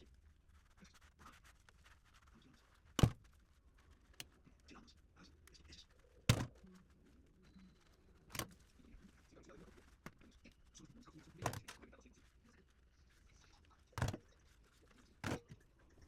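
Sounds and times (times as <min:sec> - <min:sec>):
sharp knocks of blender parts: 0:03.0 - 0:03.2, 0:06.3 - 0:06.5, 0:14.0 - 0:14.2, 0:15.2 - 0:15.5.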